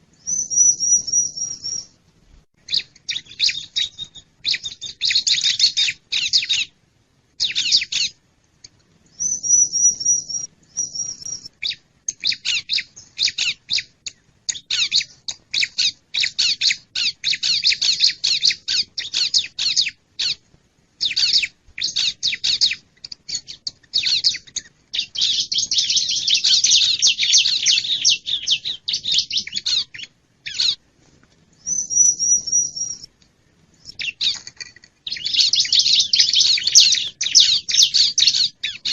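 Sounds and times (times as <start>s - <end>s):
bird chirping and chattering: 0.2s - 1.9s, 2.7s - 6.7s, 7.4s - 8.2s, 9.2s - 20.4s, 21.0s - 30.8s, 31.6s - 33.1s, 33.8s - 38.9s
high whistled bird notes: 0.2s - 1.9s, 9.2s - 13.9s, 31.6s - 33.1s.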